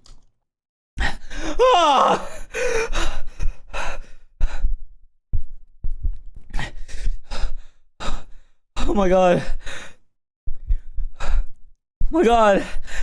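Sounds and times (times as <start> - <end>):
man whining in pain: 1.4 - 2.5.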